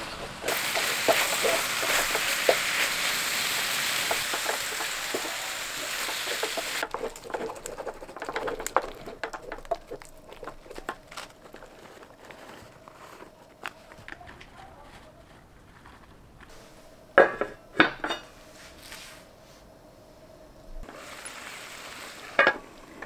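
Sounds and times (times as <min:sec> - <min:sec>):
food sizzling in a frying pan: 0:00.0 - 0:07.0, 0:20.8 - 0:23.0
wooden spatula scraping a pan: 0:00.0 - 0:13.4.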